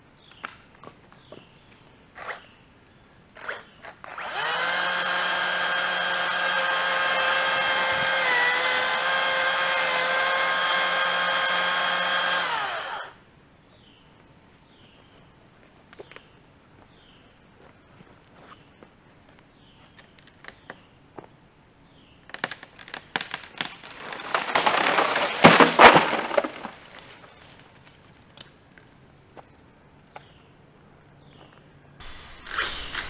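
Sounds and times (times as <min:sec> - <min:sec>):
electric chainsaw whining: 0:04.0 - 0:13.2, 0:32.0 - 0:33.0.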